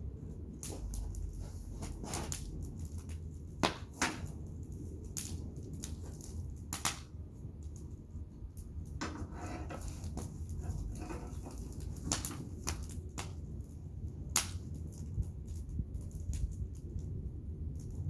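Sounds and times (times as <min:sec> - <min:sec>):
steady low rumble: 0:00.0 - 0:18.0
wood fire crackling: 0:00.0 - 0:18.0
sharp pops and snaps: 0:03.1 - 0:04.3, 0:06.7 - 0:07.1, 0:14.3 - 0:15.1.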